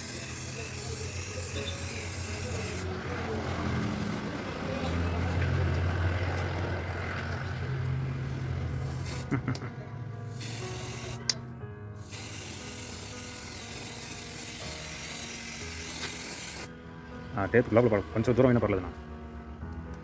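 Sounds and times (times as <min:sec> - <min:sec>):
spray paint hissing: 0:00.0 - 0:02.9, 0:08.7 - 0:09.5, 0:10.2 - 0:11.4, 0:12.0 - 0:16.7.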